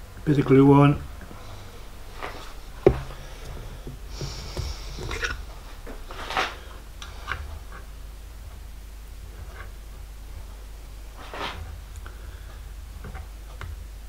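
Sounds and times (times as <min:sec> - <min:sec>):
low steady hum: 0:00.0 - 0:14.0
light taps: 0:02.8 - 0:05.3
brief scrape: 0:11.2 - 0:11.7.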